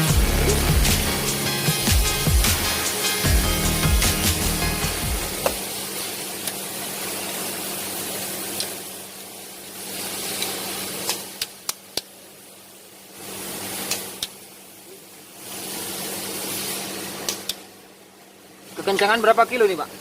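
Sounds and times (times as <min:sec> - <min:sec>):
steady hum and hiss: 0:00.0 - 0:20.0.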